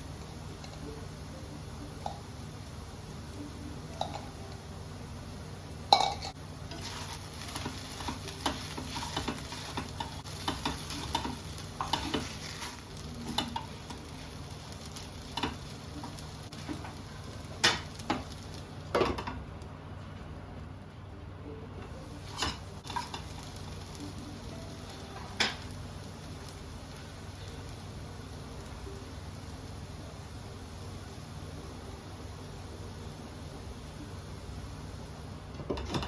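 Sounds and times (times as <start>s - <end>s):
food sizzling: 0.0s - 20.0s, 22.0s - 36.0s
spatula scraping in a pan: 6.7s - 14.2s.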